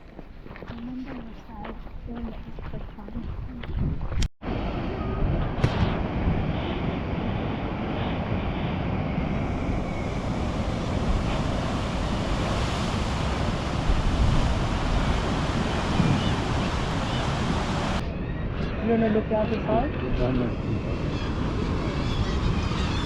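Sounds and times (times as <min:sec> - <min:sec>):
wind rumbling on microphone: 0:00.0 - 0:23.0
sea waves washing in: 0:04.4 - 0:18.0.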